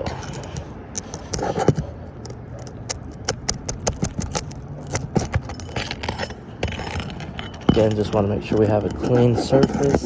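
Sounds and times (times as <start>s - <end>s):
metal bar prying out roofing nails: 2.6s - 10.0s.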